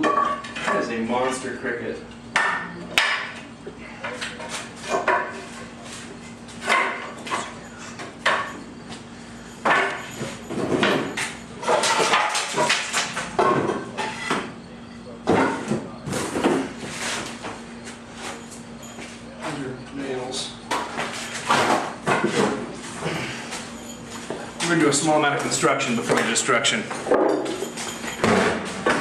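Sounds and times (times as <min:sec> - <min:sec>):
objects knocking and clattering: 0:06.6 - 0:08.7, 0:09.6 - 0:14.5, 0:20.7 - 0:29.0
voices talking: 0:13.5 - 0:28.2.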